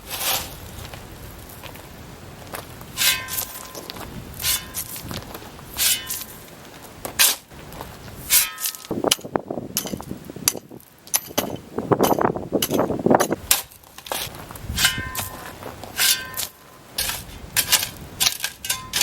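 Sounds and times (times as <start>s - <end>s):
gritty scraping and crunching: 0.0s - 19.0s
tool clinking on stone: 8.3s - 14.2s, 14.8s - 19.0s.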